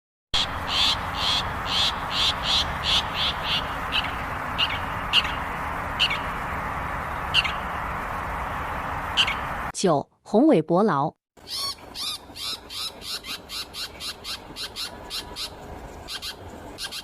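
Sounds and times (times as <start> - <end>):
shrike calling harsh notes: 0.4 - 7.8.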